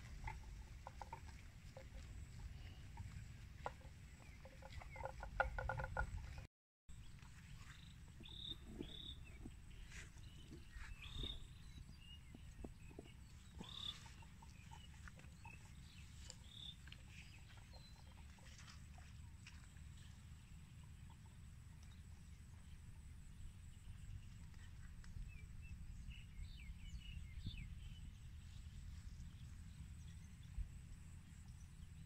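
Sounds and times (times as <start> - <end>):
clucking call: 0.0 - 6.5.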